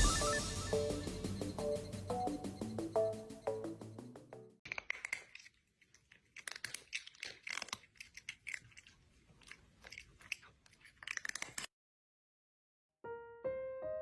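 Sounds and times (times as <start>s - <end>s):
crunchy chewing: 4.7s - 11.7s.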